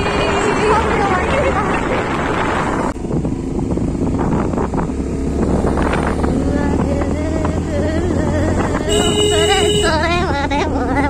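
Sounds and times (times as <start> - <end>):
vehicle engine rumble: 0.0 - 11.0
wind buffeting microphone: 0.0 - 11.0.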